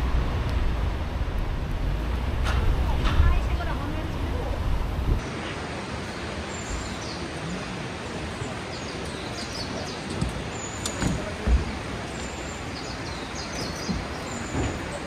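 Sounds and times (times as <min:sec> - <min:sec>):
steady outdoor rushing noise: 0:00.0 - 0:15.0
small birds chirping: 0:06.0 - 0:15.0.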